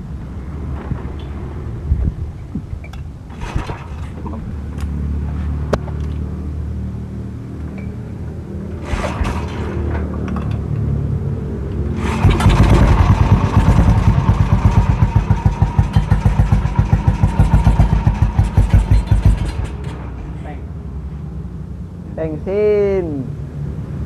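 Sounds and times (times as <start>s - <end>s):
motorcycle engine running: 11.9s - 19.9s.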